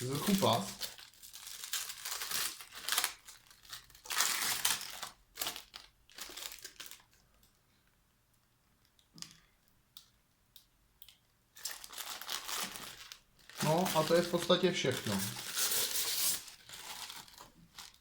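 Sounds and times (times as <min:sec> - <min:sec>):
packaging crinkling and tearing: 0:00.0 - 0:07.3, 0:11.6 - 0:18.0.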